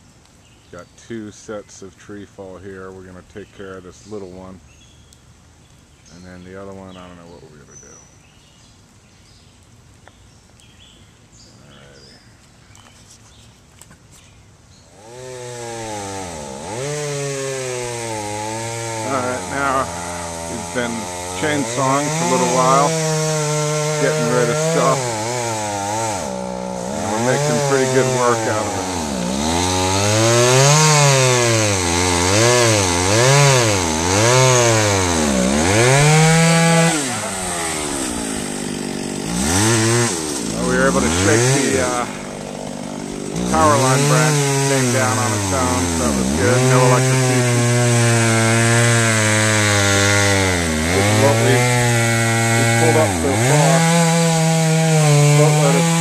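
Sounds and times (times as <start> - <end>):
faint bird chirps: 3.4 - 14.9
chainsaw cutting: 14.9 - 56.0.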